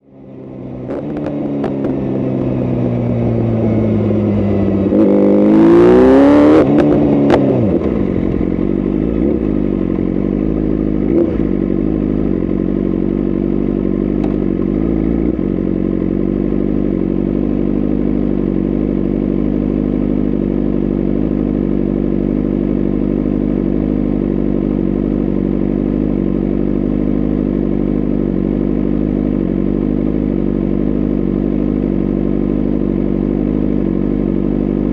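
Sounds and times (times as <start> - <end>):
motorcycle engine idling: 0.0 - 5.0, 6.6 - 34.9
motorcycle throttle blip: 14.2 - 14.5.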